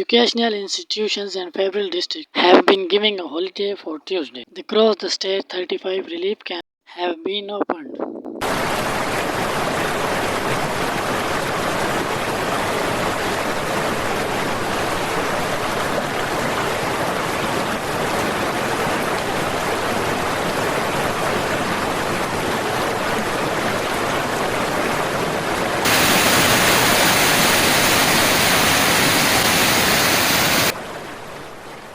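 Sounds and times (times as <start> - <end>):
rushing floodwater: 8.4 - 31.9.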